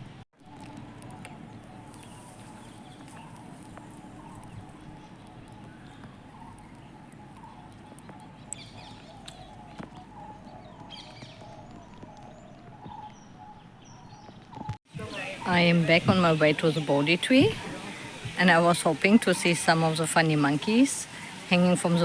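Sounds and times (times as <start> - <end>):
background ambience: 0.0 - 22.0
birds calling: 0.0 - 22.0.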